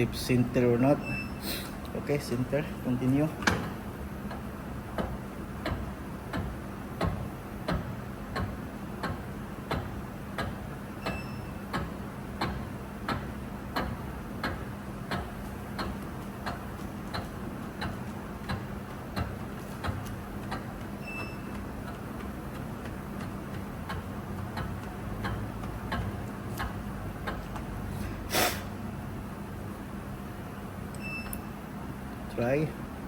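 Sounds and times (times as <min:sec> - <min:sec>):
high beep: 0:01.0 - 0:01.4, 0:11.1 - 0:11.6, 0:31.0 - 0:31.4
regular machine clicks: 0:03.1 - 0:27.8
machine motor hum: 0:11.6 - 0:28.3.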